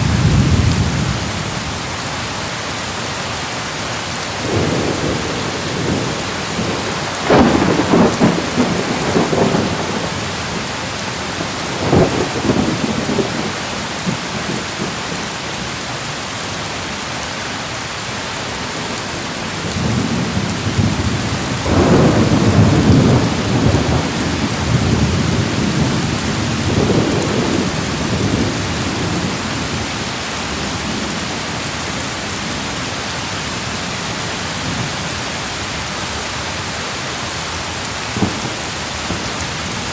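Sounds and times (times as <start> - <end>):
thunder rumbling: 0.0 - 1.9, 4.4 - 15.3, 18.8 - 31.4, 38.1 - 39.9
steady rain: 0.0 - 39.9.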